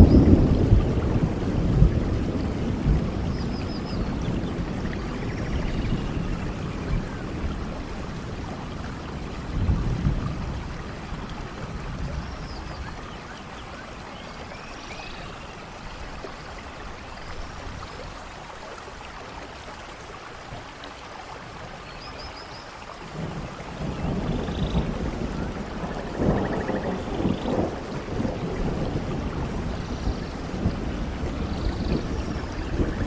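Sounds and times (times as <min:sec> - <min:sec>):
thunder rumble: 0:00.0 - 0:13.3, 0:23.1 - 0:33.0
steady rainfall: 0:00.0 - 0:33.0.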